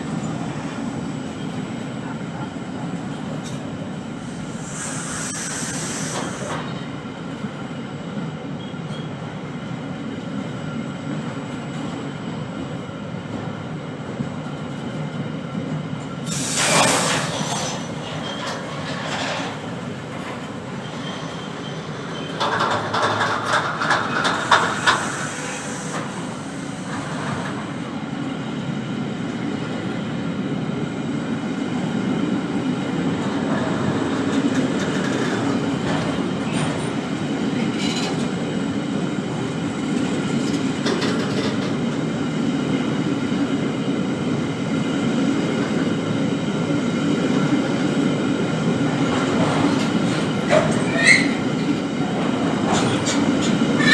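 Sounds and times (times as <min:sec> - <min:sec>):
train rumbling on rails: 0:00.0 - 0:53.9
wheel clatter over rail joints: 0:16.6 - 0:26.2.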